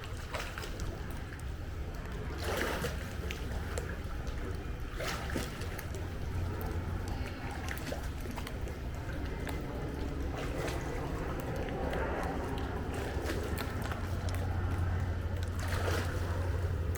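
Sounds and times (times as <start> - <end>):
pool water splashing and sloshing: 0.0 - 16.9
loud splashes: 15.6 - 16.7.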